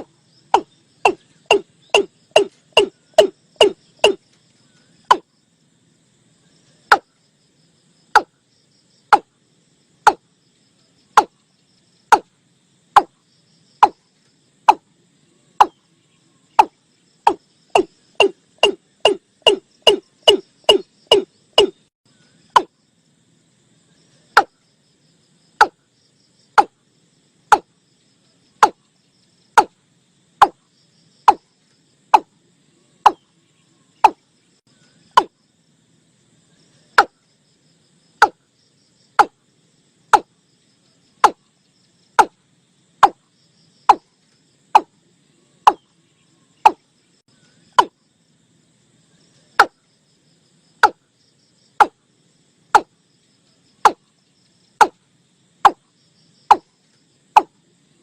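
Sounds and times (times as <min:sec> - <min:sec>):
bird calling short sharp notes: 0:00.6 - 0:04.2, 0:17.3 - 0:21.8.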